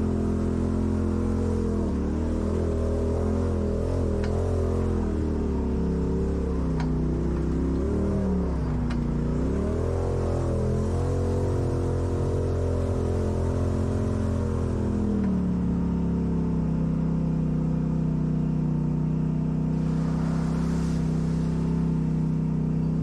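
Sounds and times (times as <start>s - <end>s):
off-road vehicle engine running: 0.0s - 23.0s.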